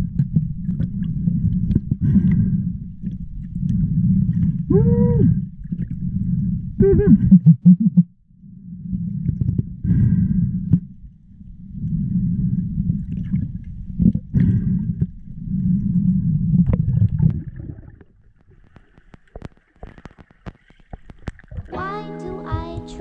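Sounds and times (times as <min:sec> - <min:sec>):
muffled underwater rumbling: 0:00.0 - 0:23.0
breathing underwater: 0:00.6 - 0:07.4, 0:08.6 - 0:11.0, 0:11.6 - 0:16.7.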